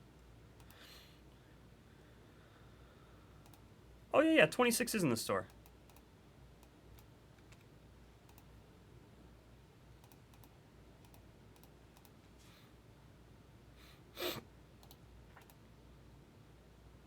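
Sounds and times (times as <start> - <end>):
keyboard and mouse clicks: 3.4 - 3.6, 5.5 - 7.7, 8.3 - 8.5, 10.0 - 12.2, 14.8 - 15.6.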